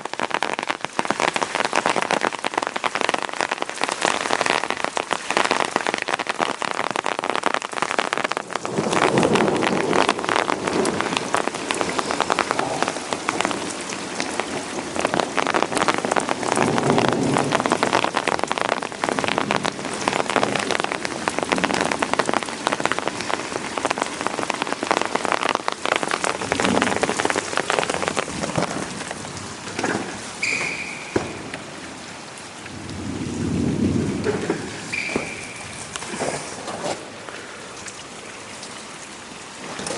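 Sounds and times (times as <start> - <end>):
heavy rain pattering: 0.0 - 39.9
low rumbles of thunder: 32.6 - 35.9.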